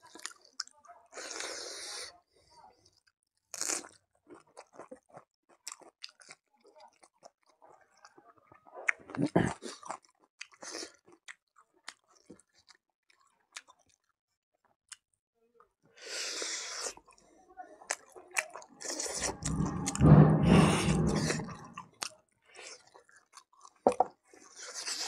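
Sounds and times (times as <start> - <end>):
man chewing food: 3.5 - 7.5, 9.0 - 14.1, 22.6 - 25.0.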